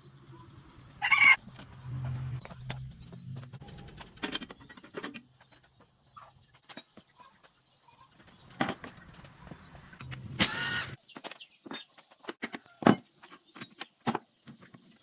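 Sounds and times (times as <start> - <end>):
power tool running: 10.4 - 11.0.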